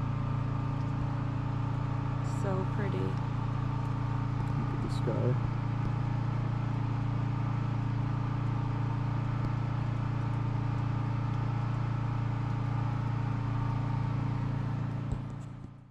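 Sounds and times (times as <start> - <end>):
portable generator humming: 0.0 - 15.6.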